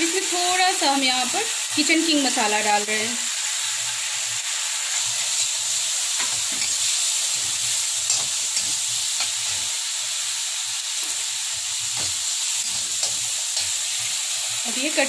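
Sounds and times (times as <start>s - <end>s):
sauce sizzling in a pan: 0.0s - 15.0s
metal spatula scraping a pan: 11.0s - 14.1s.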